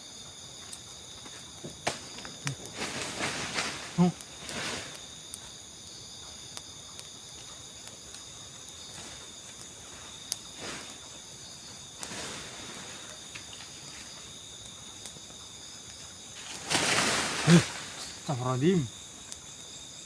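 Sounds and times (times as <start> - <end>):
crickets trilling: 0.0 - 20.0
rustling noise: 2.0 - 5.0, 16.3 - 18.2.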